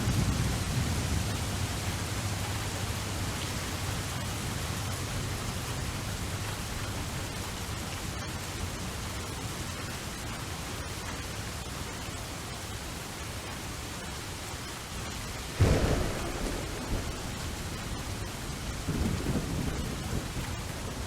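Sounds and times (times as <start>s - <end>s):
steady rain hiss: 0.0s - 21.0s
low rumble: 15.6s - 20.6s.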